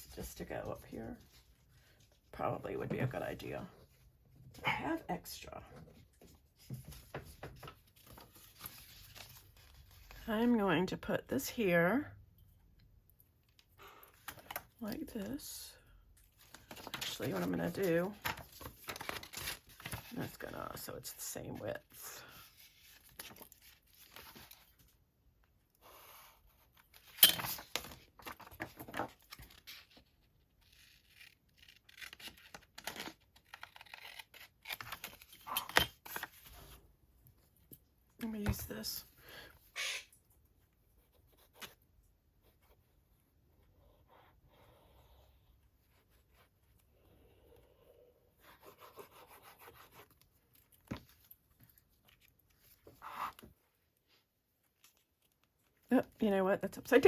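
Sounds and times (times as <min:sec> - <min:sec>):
paper rustle: 0:06.6 - 0:10.2, 0:16.4 - 0:20.4
paper rustling and tearing: 0:27.0 - 0:36.8.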